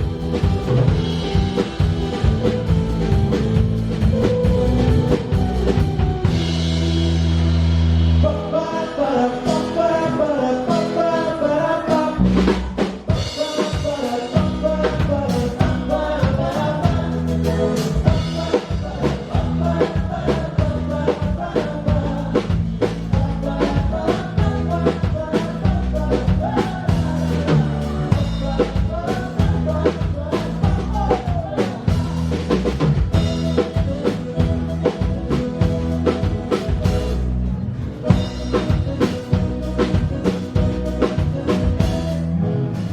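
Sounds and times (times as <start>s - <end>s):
drum kit beat: 0.0s - 8.3s, 11.9s - 42.9s
live band playing: 0.0s - 42.9s.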